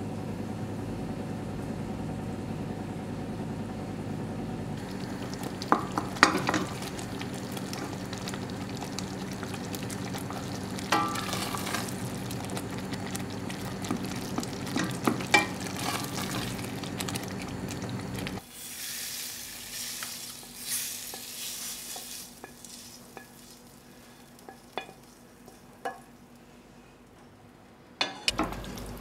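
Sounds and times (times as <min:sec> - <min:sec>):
spoon stirring and scraping: 0:04.8 - 0:18.4, 0:19.7 - 0:26.1
curry base sizzling in saucepan: 0:04.8 - 0:26.5, 0:28.0 - 0:29.0
chicken hissing in pan: 0:18.4 - 0:24.4.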